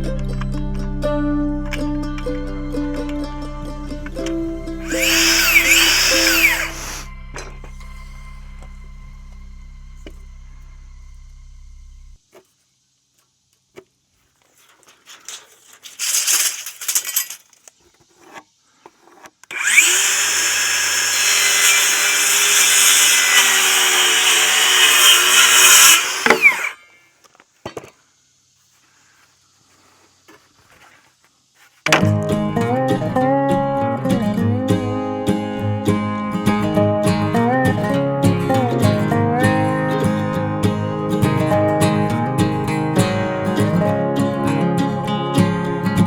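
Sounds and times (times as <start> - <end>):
power saw cutting wood: 4.8 - 7.8, 19.5 - 26.8.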